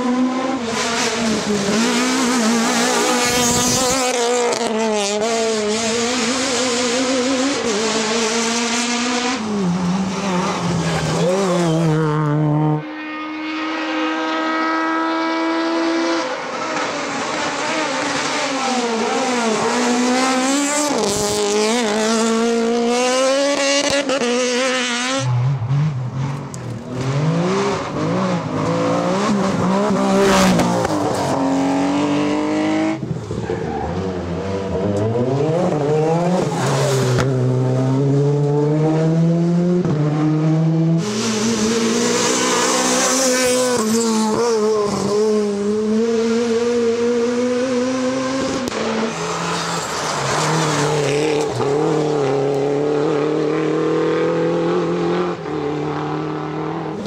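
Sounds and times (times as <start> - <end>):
rally car engines revving: 0.0 - 57.0
tyre squeal: 33.3 - 34.2.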